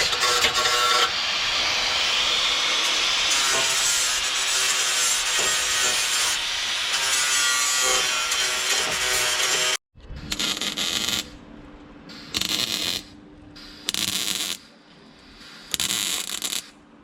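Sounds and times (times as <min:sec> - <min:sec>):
tool scraping metal: 0:00.0 - 0:09.8.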